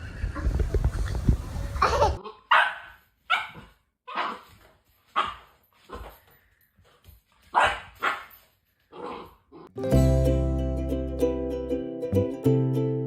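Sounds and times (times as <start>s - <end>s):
dog barking: 2.2s - 4.5s, 5.2s - 6.0s, 7.5s - 8.3s.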